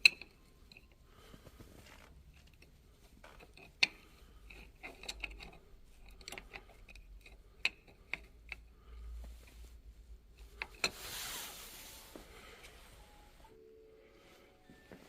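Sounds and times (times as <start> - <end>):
tools and metal parts clicking: 0.0 - 1.0, 3.4 - 8.7.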